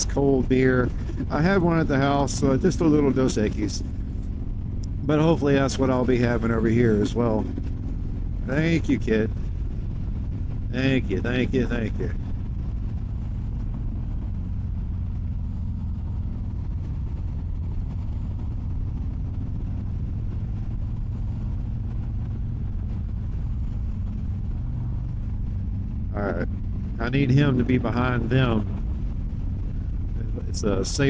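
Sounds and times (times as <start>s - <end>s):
motorcycle engine running: 0.0s - 31.0s
road and wind noise: 0.0s - 31.0s.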